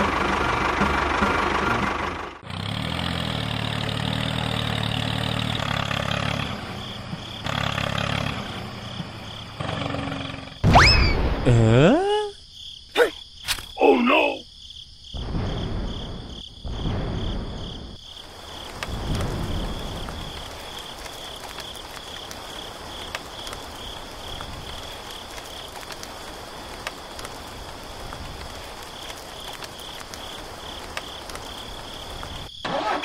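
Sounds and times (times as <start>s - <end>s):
rain hiss: 2.5s - 10.6s, 15.2s - 32.6s
crickets chirping: 2.5s - 33.0s
heavy low rumbles: 15.2s - 18.0s.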